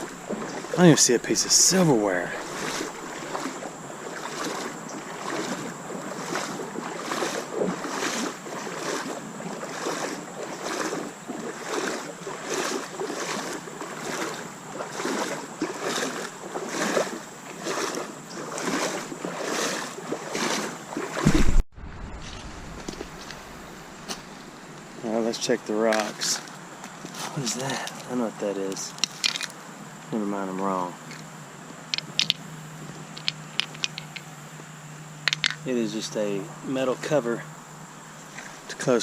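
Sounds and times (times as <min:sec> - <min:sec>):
boots wading through shallow water: 0:00.0 - 0:21.6, 0:38.2 - 0:39.0
loud rumble: 0:21.3 - 0:24.0.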